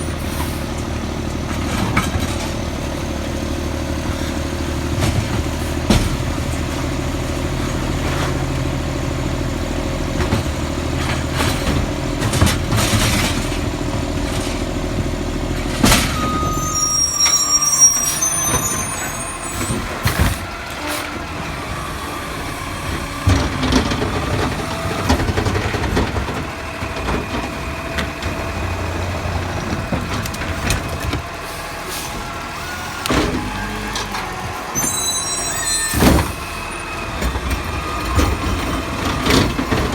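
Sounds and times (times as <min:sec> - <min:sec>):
brakes squealing: 0:00.0 - 0:39.9
diesel engine running: 0:00.0 - 0:39.9
knocks and clanks: 0:10.2 - 0:16.6, 0:22.8 - 0:31.4, 0:35.9 - 0:39.9.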